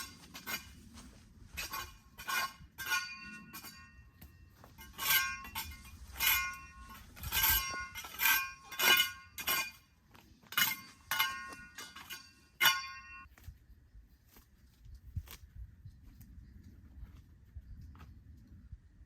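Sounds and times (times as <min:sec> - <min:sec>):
ringing clinks of hard objects: 0:01.6 - 0:09.9, 0:10.5 - 0:13.3.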